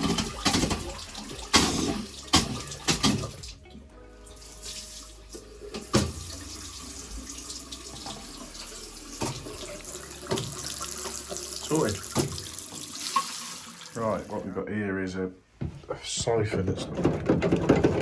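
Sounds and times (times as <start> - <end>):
water running from a tap: 0.0 - 3.6, 4.3 - 14.4
sharp knocks and clatters: 15.6 - 18.0.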